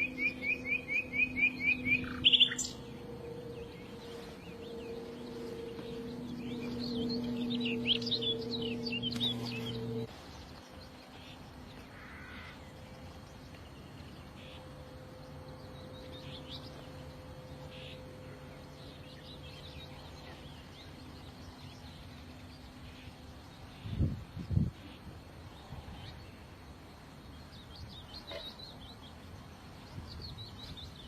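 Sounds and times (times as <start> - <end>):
small birds chirping: 0.0 - 14.7, 27.2 - 31.0
steady low hum: 0.0 - 31.0.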